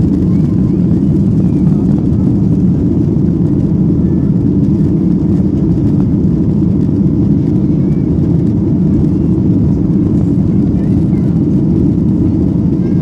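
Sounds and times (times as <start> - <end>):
jet engines at take-off thrust: 0.0 - 13.0.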